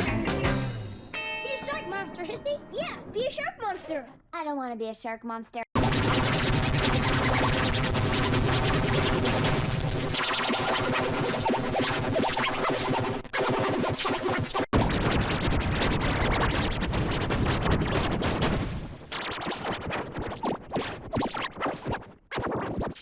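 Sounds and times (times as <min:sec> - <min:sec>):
distorted scratchy electronic noise: 0:05.8 - 0:20.6.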